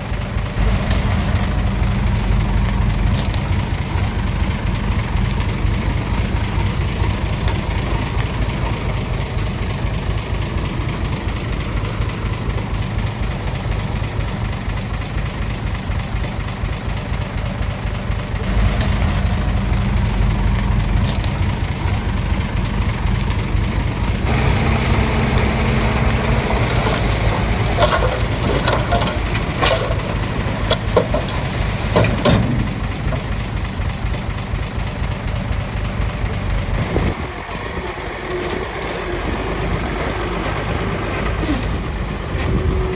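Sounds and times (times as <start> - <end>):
diesel construction machinery running: 0.0 - 42.9
metallic clanks and knocks: 26.0 - 33.5.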